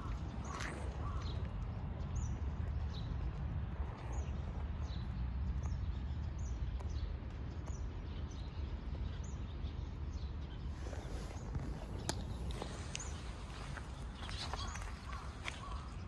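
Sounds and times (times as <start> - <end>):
low outdoor rumble: 0.0 - 16.0
small birds chirping: 0.0 - 16.0.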